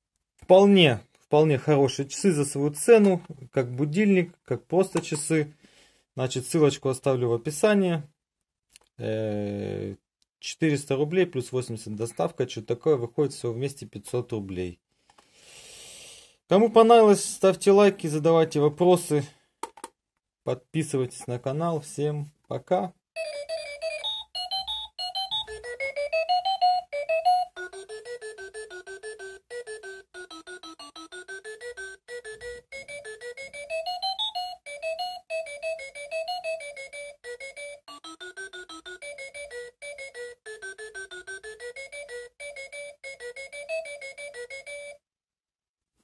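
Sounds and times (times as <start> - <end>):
alarm clock beeping melody: 23.2 - 45.0.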